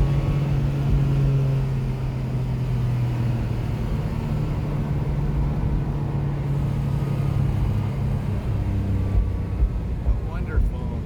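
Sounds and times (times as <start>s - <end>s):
car engine drone from inside cabin: 0.0s - 11.0s.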